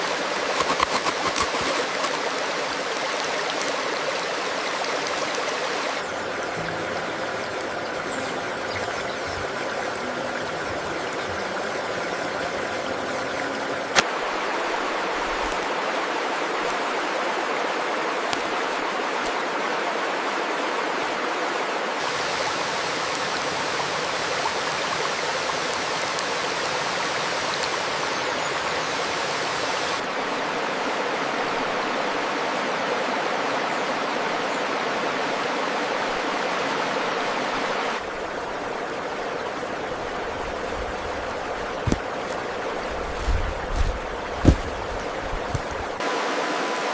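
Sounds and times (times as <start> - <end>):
running water rushing: 0.0 - 46.9.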